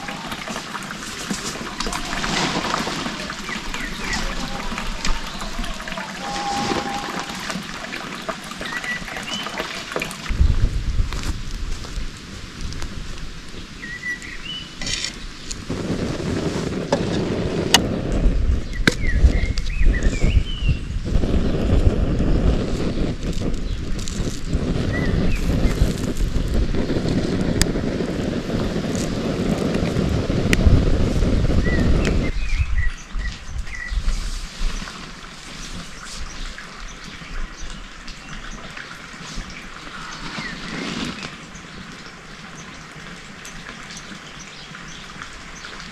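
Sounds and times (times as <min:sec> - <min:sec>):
wind buffeting microphone: 0:10.2 - 0:42.0
small birds chirping: 0:18.5 - 0:27.5, 0:31.5 - 0:35.0.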